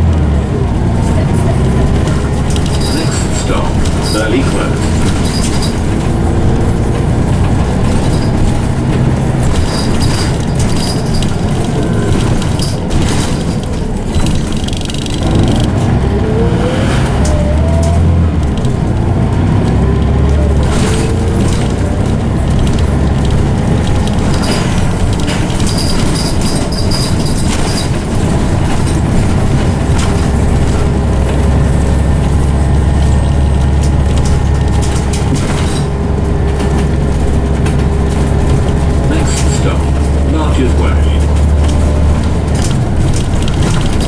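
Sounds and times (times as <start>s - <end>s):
bus engine running: 0.0s - 44.0s
bus gearbox whine: 0.1s - 44.0s
clicks and rattles: 1.2s - 16.0s, 17.2s - 44.0s.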